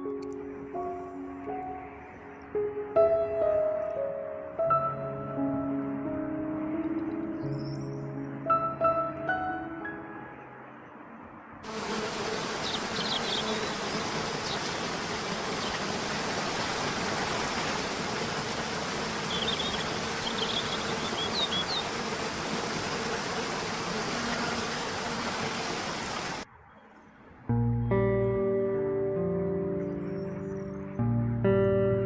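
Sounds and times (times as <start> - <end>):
faint buzzing hum: 11.7 - 26.4
steady hiss: 11.7 - 26.4
small birds chirping: 11.9 - 16.7, 17.3 - 22.1, 27.8 - 31.8.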